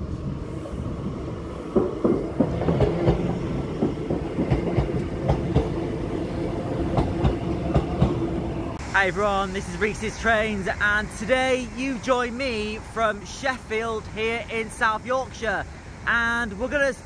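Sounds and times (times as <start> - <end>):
wheels clacking over rail joints: 1.6 - 8.5.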